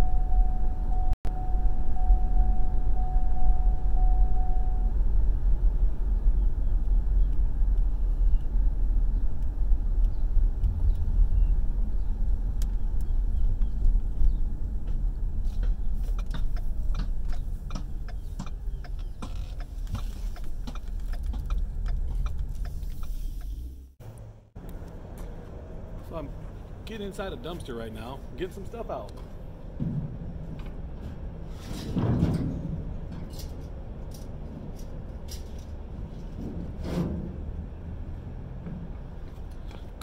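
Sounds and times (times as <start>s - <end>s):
car interior rumble while driving: 0.0s - 26.8s
sharp clicks and knocks: 12.6s - 25.3s.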